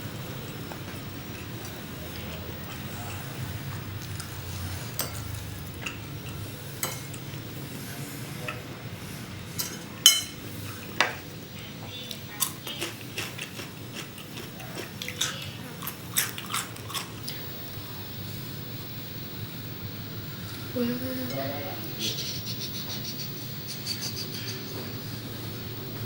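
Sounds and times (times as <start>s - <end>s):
utensils clicking on dishes: 4.0s - 7.3s, 9.5s - 10.4s, 12.3s - 17.4s.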